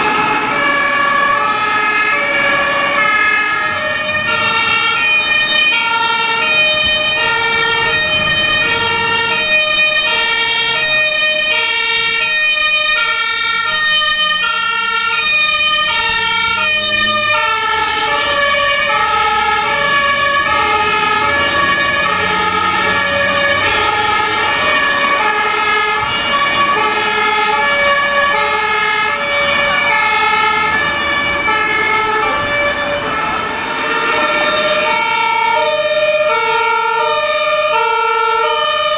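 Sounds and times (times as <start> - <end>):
low rumble of vehicles: 0.0 - 38.9
two-tone sirens: 0.0 - 38.9.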